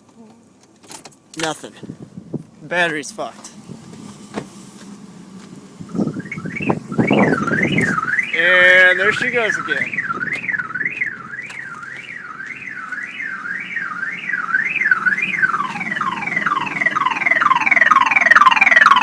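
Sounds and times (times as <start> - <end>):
car alarm siren wailing: 5.8 - 19.0.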